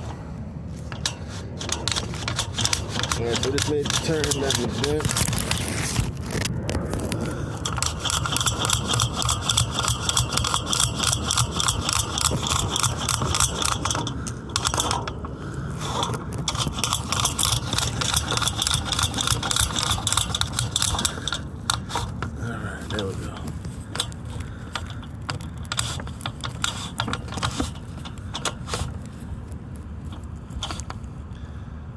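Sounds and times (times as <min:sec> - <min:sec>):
cable scraping: 0:00.0 - 0:31.3
cable reel clicking: 0:00.9 - 0:05.9, 0:07.6 - 0:22.3, 0:22.9 - 0:29.1, 0:30.0 - 0:31.0.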